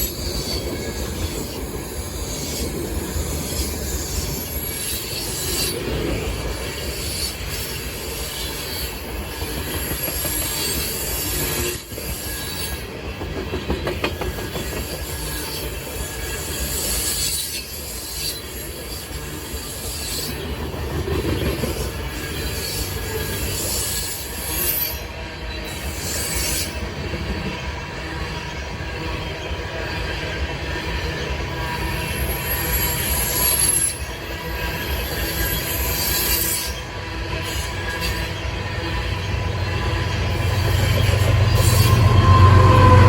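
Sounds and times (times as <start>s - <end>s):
train cars rolling: 0.0s - 43.0s
wheel squeal: 31.0s - 43.0s.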